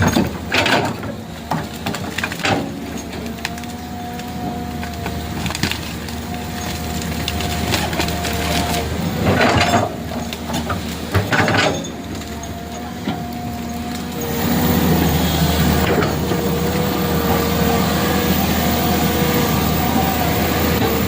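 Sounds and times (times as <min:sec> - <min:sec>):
engine running with whine: 0:00.0 - 0:21.0
loud crunching cracking bursts: 0:00.5 - 0:11.4.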